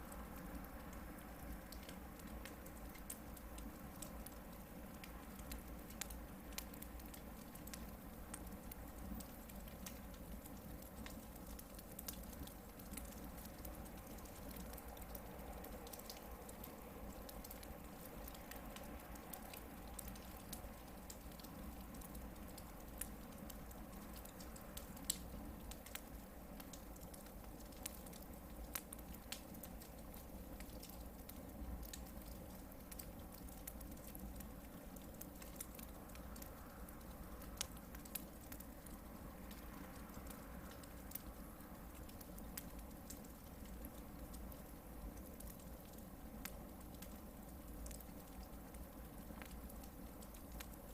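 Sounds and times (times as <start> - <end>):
campfire crackling and popping: 0.0 - 50.9.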